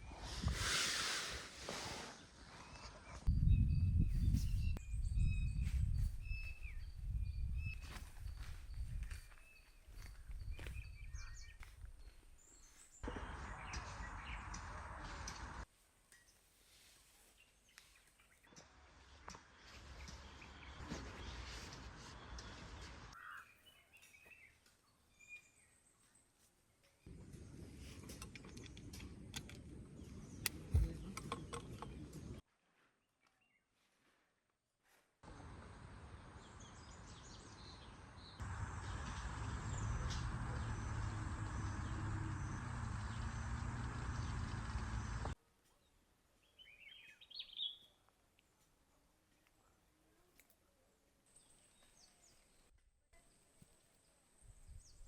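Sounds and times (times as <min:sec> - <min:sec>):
bird chirps: 0:02.6 - 0:15.4, 0:46.4 - 0:48.0.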